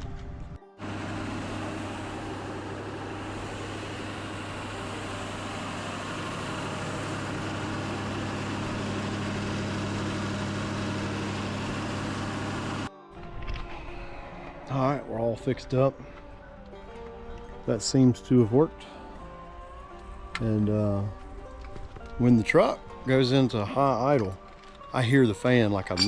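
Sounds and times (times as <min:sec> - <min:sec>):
higher hum: 0:00.0 - 0:26.0
truck engine idling: 0:00.8 - 0:14.7.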